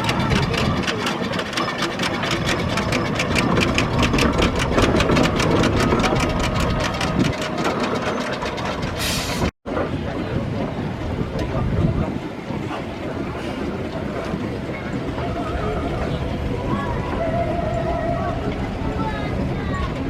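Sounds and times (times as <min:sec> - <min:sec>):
steam engine exhaust chuffing: 0:00.0 - 0:09.5.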